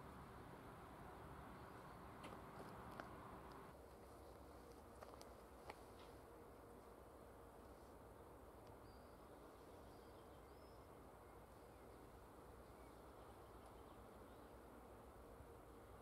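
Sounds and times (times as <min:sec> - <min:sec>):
faint background hiss: 0:00.0 - 0:16.0
faint high bird chirps: 0:08.7 - 0:14.5.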